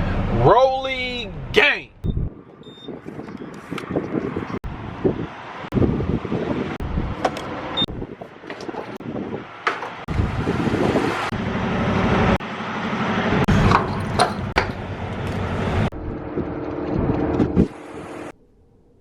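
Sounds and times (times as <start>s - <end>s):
truck engine and road noise: 0.0s - 18.5s.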